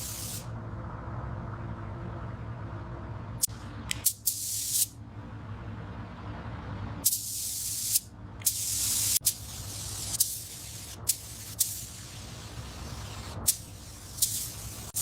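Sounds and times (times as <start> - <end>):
pressurised spray hissing: 0.0 - 0.5, 4.0 - 4.9, 7.0 - 15.0
low steady hum: 0.0 - 15.0.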